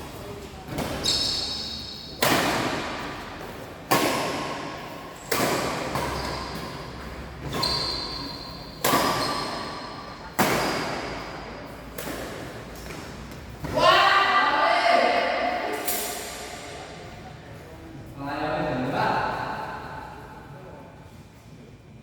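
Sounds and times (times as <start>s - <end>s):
racket hitting shuttlecock: 2.1s - 13.8s.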